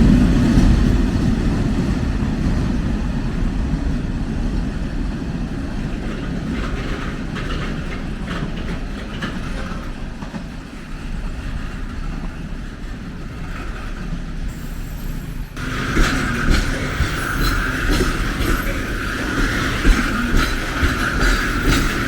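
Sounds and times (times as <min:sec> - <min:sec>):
train rumbling past: 0:00.0 - 0:22.0
wheels clicking over rail joints: 0:05.8 - 0:14.4, 0:15.6 - 0:22.0.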